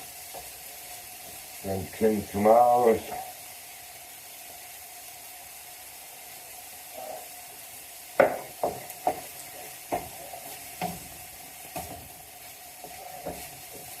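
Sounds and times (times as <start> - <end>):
food sizzling in a frying pan: 0.0 - 14.0
utensil knocking against pan: 8.2 - 9.3.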